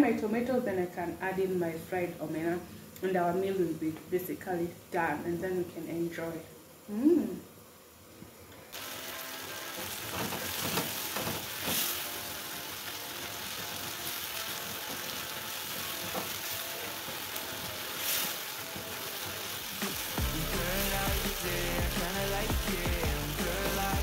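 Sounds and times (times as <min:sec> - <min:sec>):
tomatoes sizzling in a pot: 0:08.7 - 0:24.0.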